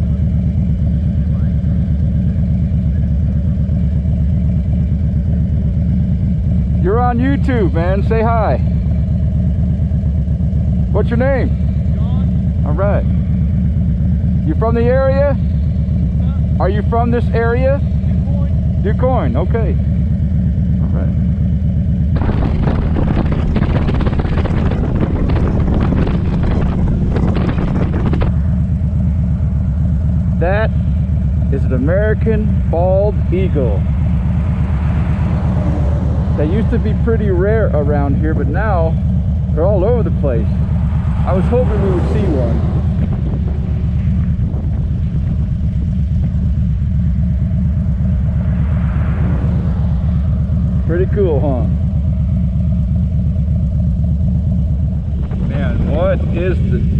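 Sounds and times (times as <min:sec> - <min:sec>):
motorcycle engine idling: 0:00.0 - 0:56.9
wind buffeting on microphone: 0:22.2 - 0:28.8, 0:40.5 - 0:47.5.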